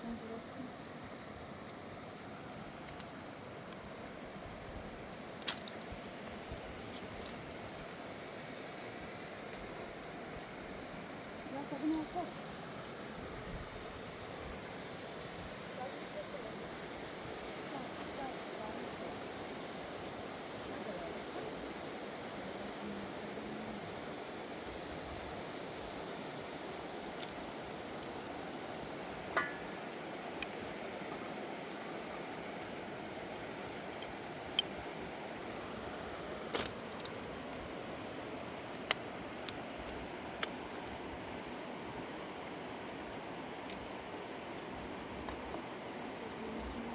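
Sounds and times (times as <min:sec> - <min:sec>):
cricket chirping: 0:00.0 - 0:46.9.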